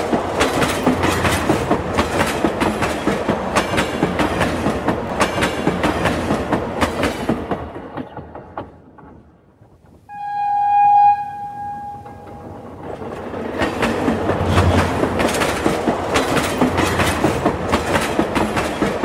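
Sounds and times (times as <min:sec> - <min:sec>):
train wheels clattering over rail joints: 0:00.0 - 0:09.6, 0:12.1 - 0:19.0
locomotive horn: 0:10.1 - 0:12.6.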